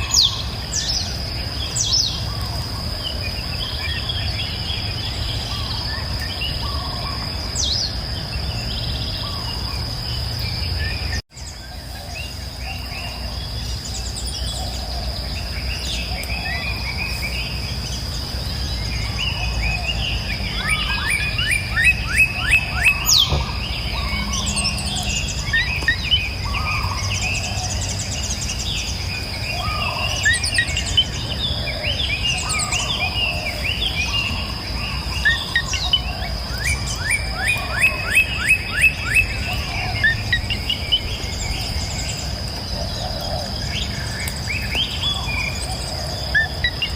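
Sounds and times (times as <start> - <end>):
birds singing and calling: 0.0 - 46.9
constant high whine: 0.0 - 46.9.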